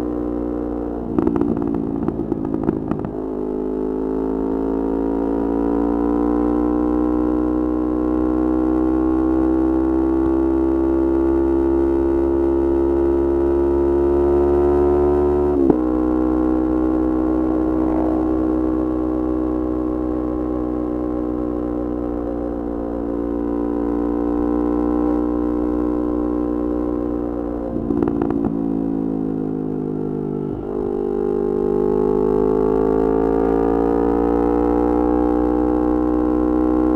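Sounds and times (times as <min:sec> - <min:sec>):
motorcycle engine at high revs: 0:00.0 - 0:36.9
exhaust crackles: 0:01.0 - 0:03.3, 0:25.2 - 0:31.0.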